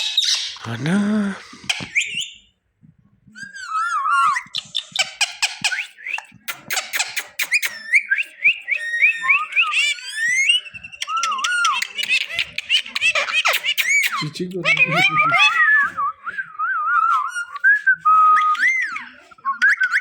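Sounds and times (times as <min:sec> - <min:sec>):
parakeet chattering and whistling: 0:00.0 - 0:02.5, 0:03.4 - 0:16.0, 0:16.8 - 0:20.0
beak clicks: 0:04.4 - 0:08.0, 0:10.1 - 0:15.1.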